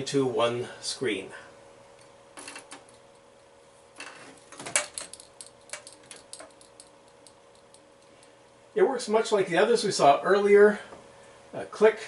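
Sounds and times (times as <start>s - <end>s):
faint steady hum: 0.0s - 12.0s
sharp clicks and light clattering: 4.6s - 8.4s.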